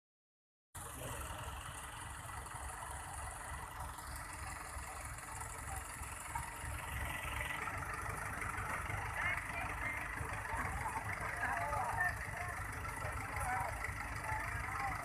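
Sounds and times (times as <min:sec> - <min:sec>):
diesel engine running: 0:00.8 - 0:15.0.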